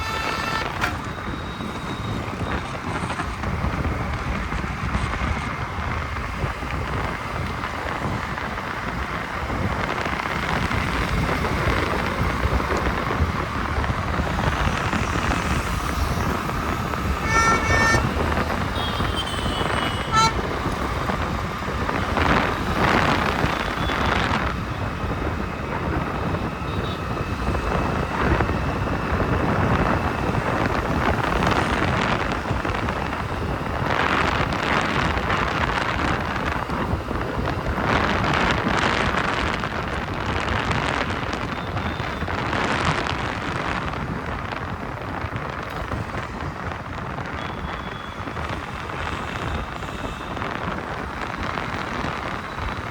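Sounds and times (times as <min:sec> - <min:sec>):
vehicle horn: 0:00.0 - 0:03.2, 0:17.0 - 0:21.1
motorcycle road noise: 0:00.0 - 0:52.9
wind buffeting microphone: 0:00.0 - 0:52.9.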